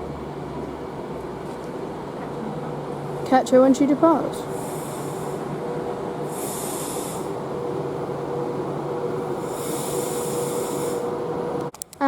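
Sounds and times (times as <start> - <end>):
electric train humming: 0.0 - 11.7
air hiss bursts: 4.4 - 5.5, 6.2 - 7.4, 9.3 - 11.1.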